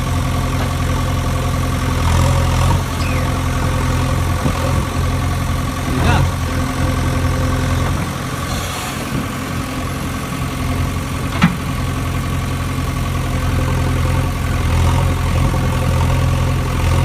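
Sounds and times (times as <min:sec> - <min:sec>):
motor humming: 0:02.8 - 0:04.1.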